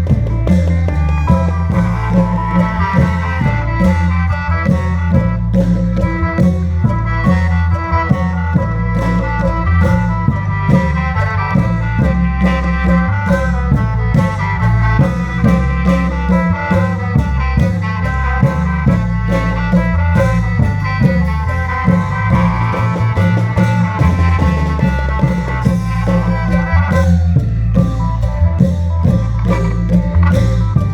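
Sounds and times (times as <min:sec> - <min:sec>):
drum strokes: 0:00.0 - 0:30.9
reedy mouth organ melody and drone: 0:00.8 - 0:05.5.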